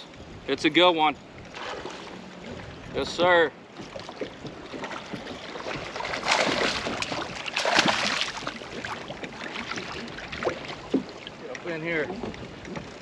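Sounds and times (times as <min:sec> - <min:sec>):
fish thrashing water splashing: 0:03.9 - 0:11.3.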